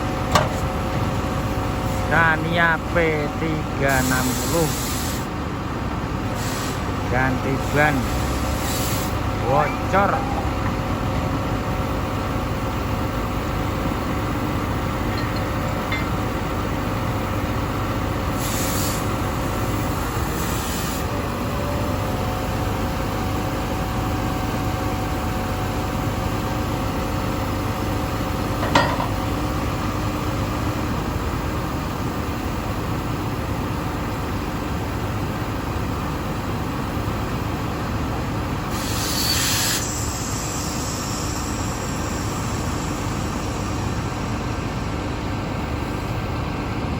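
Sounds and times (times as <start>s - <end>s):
diesel engine rumbling: 0.0s - 39.0s, 39.8s - 46.9s
air hissing bursts: 3.9s - 5.3s, 6.4s - 6.9s, 8.0s - 9.2s, 18.3s - 19.1s, 38.8s - 43.2s.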